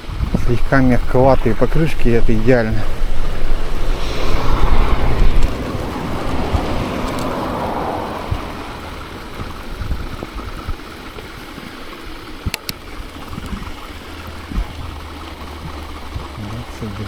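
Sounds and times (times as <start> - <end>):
wind noise on microphone: 0.0 - 11.1
bicycle tyres rolling over snow: 5.5 - 17.0.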